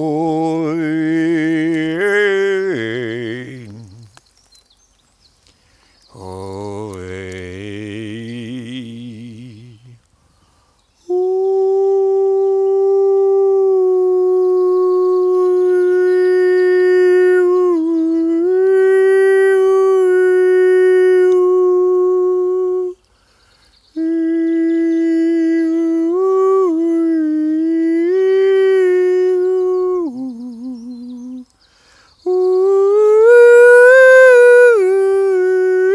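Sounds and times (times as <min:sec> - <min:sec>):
man singing long notes: 0:00.0 - 0:04.2, 0:06.1 - 0:10.1, 0:11.0 - 0:23.1, 0:24.0 - 0:31.6, 0:32.2 - 0:35.9
man breathing in: 0:10.2 - 0:10.9, 0:23.1 - 0:23.8, 0:31.6 - 0:32.2.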